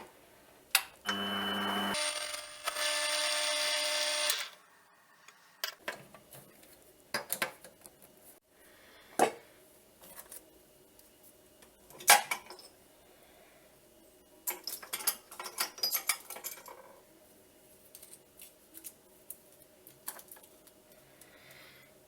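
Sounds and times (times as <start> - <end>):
electric power tool whining: 1.1 - 4.6.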